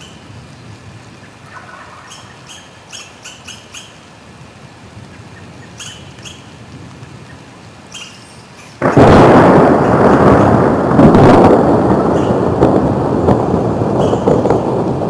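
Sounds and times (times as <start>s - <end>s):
steady rain: 0.0s - 15.0s
bird chirping: 2.0s - 4.0s, 5.4s - 6.6s, 7.2s - 8.8s.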